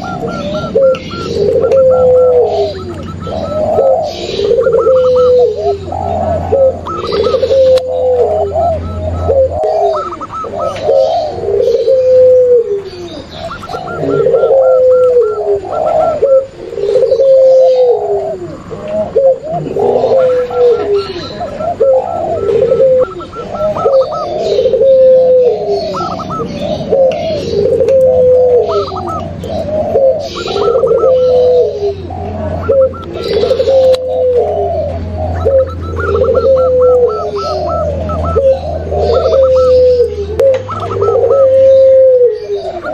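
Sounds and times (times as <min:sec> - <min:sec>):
doves cooing: 0:00.0 - 0:42.9.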